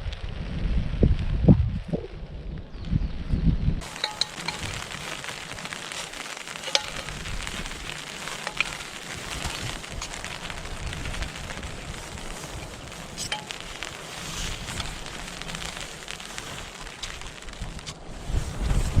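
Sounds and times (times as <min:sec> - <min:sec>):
rain hissing: 0:03.8 - 0:19.0.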